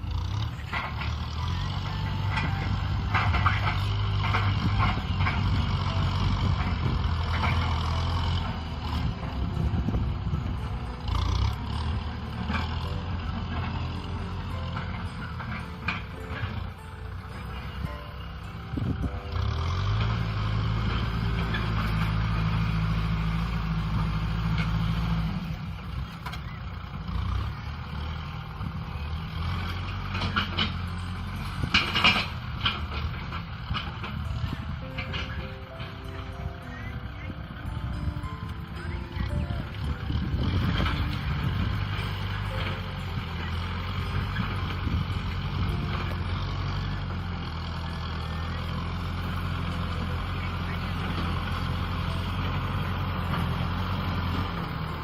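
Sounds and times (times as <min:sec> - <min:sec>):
tractor diesel engine running: 0:00.0 - 0:55.0
sharp knocks and rattles: 0:00.1 - 0:19.0, 0:29.4 - 0:36.4.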